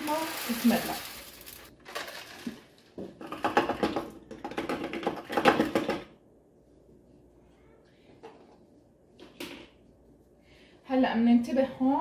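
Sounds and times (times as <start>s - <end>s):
salt crystals pattering: 0.0s - 2.6s.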